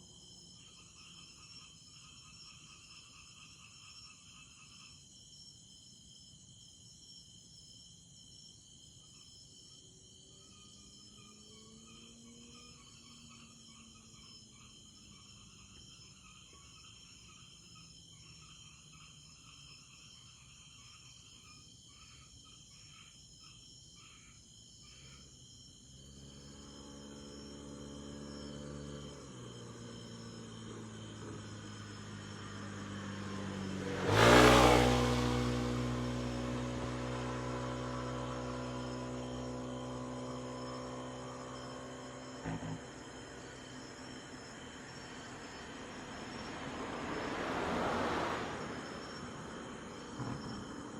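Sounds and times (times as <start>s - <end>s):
crickets chirping: 0.0s - 50.9s
vehicle engine running and revving: 10.2s - 14.1s, 25.9s - 50.9s.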